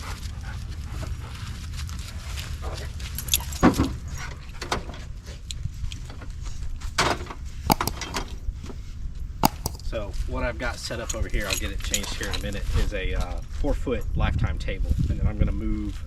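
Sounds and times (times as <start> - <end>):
metal gear clinking and rattling: 3.0 - 4.6, 7.7 - 8.4, 9.4 - 10.0, 10.8 - 12.8
knocks: 7.7 - 8.2, 9.4 - 9.9.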